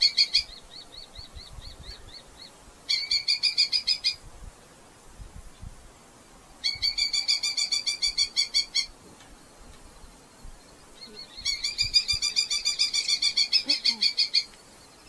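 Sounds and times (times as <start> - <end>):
falcon chattering alarm calls: 11.4 - 14.5.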